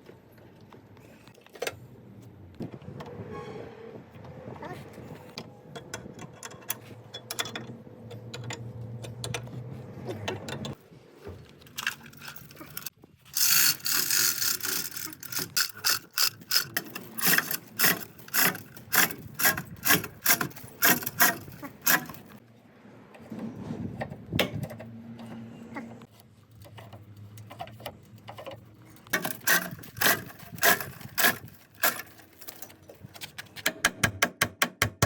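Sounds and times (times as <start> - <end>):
hand ratchet clicking: 11.8 - 22.4, 29.1 - 32.7.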